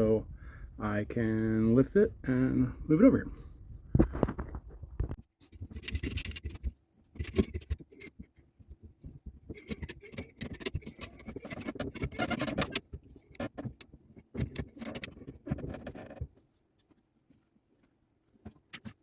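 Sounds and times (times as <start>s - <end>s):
metal clanking and rattling: 5.6s - 6.6s, 7.2s - 8.2s, 9.4s - 16.2s.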